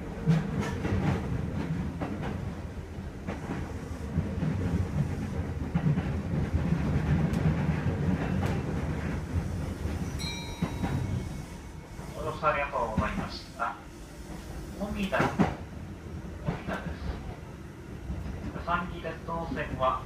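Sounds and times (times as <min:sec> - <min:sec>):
train running gear rumble: 0:00.0 - 0:20.0
high ringing tone: 0:10.1 - 0:12.0.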